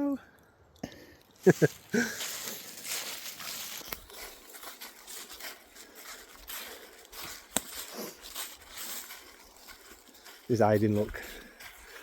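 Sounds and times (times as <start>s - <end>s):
twigs snapping: 1.2s - 5.5s, 6.4s - 10.4s
rustling and crunching in dry leaves: 1.3s - 12.0s.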